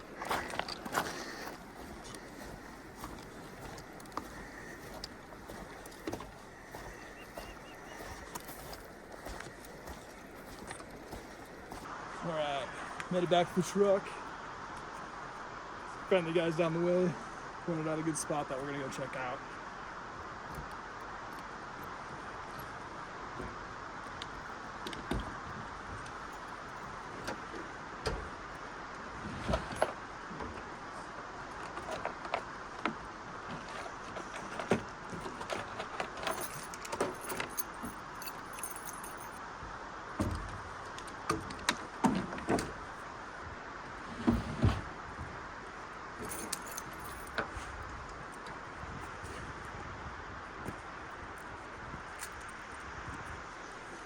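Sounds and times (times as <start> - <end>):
keys clinking and jingling: 3.0 - 11.8, 36.1 - 39.4, 46.2 - 47.4.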